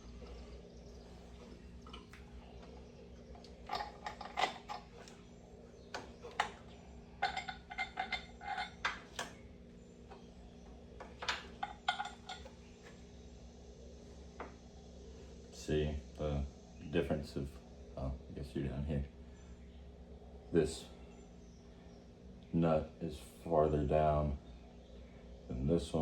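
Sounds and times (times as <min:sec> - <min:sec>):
steady low hum: 0:00.0 - 0:26.0
metal tools clinking on metal: 0:03.5 - 0:05.1, 0:06.0 - 0:09.3, 0:11.1 - 0:12.5.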